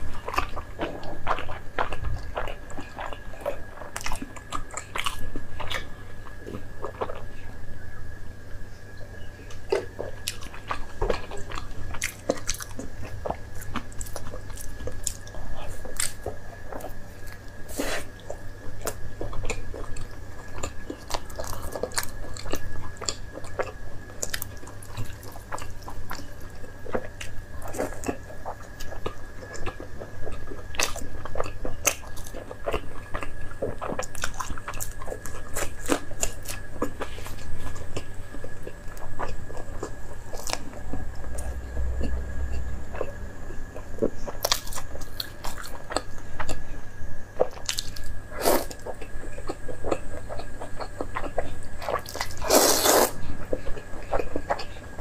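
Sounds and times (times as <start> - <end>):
person chewing food: 0.0 - 7.6, 9.4 - 46.8, 47.4 - 55.0
low hum: 36.8 - 52.5.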